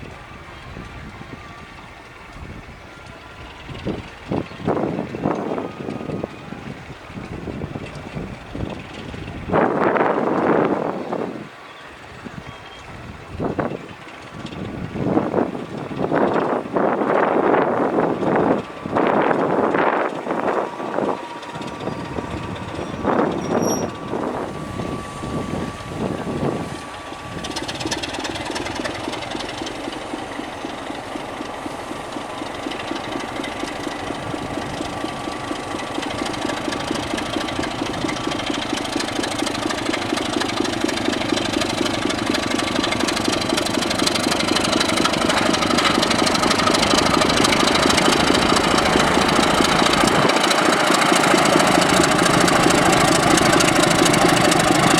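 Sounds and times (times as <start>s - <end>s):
diesel train engine knocking: 0.0s - 54.9s.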